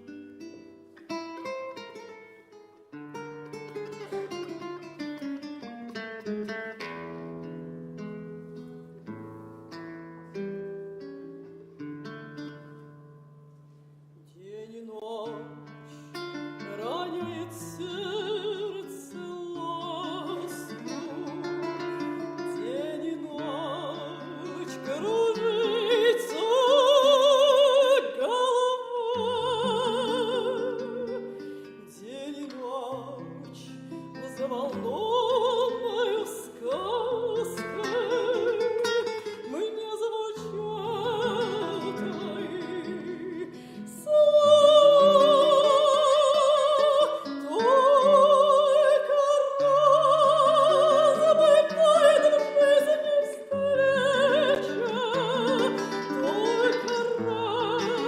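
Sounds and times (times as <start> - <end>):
woman singing operatically: 14.4 - 58.0.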